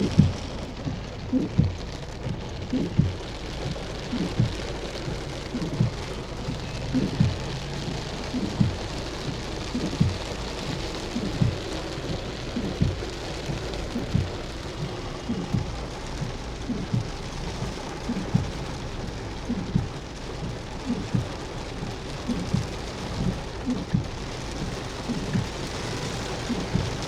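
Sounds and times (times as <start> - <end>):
short low thuds: 0.0 - 18.8
heavy rain hissing: 0.0 - 27.0.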